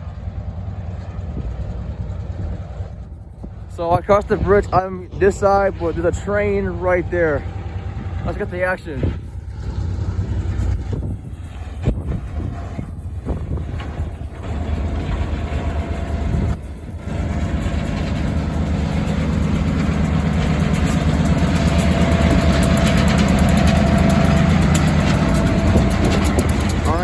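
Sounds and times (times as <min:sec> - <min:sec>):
diesel locomotive engine running: 0:00.0 - 0:27.0.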